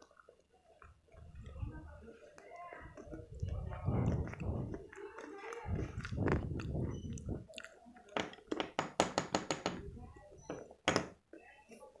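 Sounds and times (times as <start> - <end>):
soft chewing: 0.0 - 8.5.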